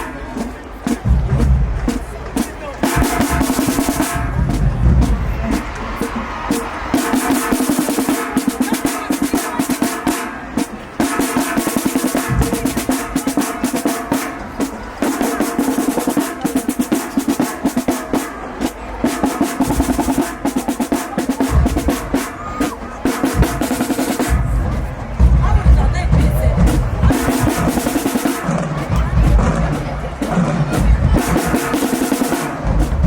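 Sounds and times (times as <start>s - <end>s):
snare drum rolls: 0.0s - 33.0s
tenor drums: 0.0s - 33.0s
bass drum hits: 3.0s - 5.8s, 23.4s - 27.7s.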